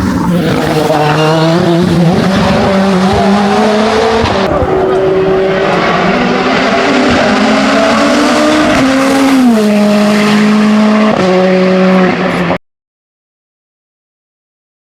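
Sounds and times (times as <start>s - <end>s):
race car engine at high revs: 0.0s - 12.6s.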